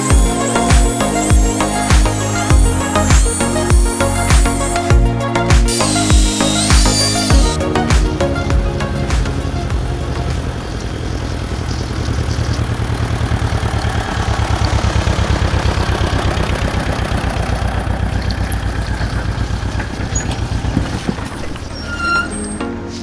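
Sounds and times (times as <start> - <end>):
toy helicopter rotor whirring: 0.0 - 7.6.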